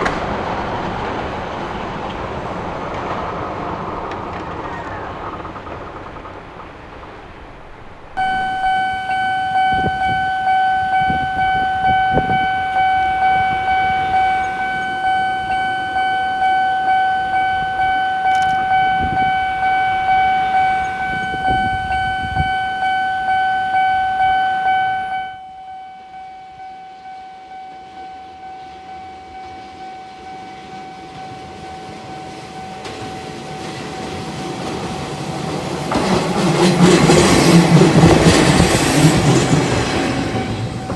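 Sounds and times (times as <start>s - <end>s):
approaching train rumble: 0.0s - 25.4s, 26.0s - 40.9s
level-crossing electronic bell: 8.2s - 33.9s.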